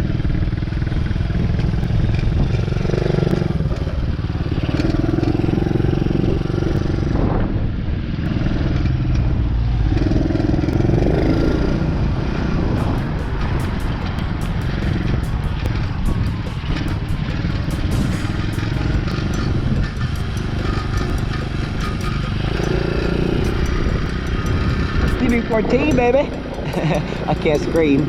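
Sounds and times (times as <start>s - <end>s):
sharp ticks: 12.8s - 28.0s.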